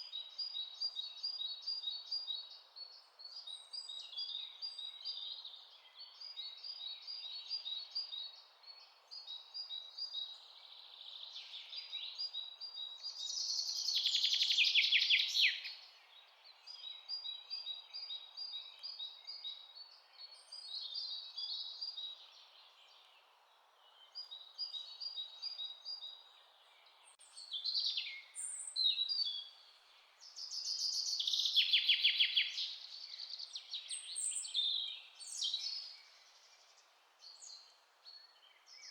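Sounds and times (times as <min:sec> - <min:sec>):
faint steady hiss: 0:00.0 - 0:38.9
songbirds chirping: 0:00.0 - 0:38.9.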